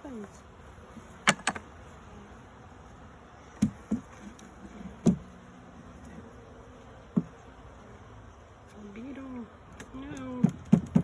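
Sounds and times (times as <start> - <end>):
bees buzzing: 0.0 - 11.0
sharp knocks: 10.4 - 11.0.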